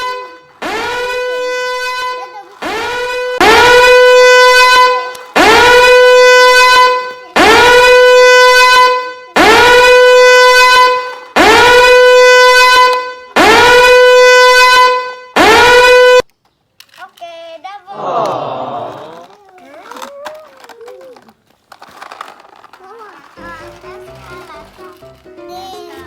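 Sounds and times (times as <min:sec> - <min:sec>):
horn blasts: 0:00.0 - 0:16.2.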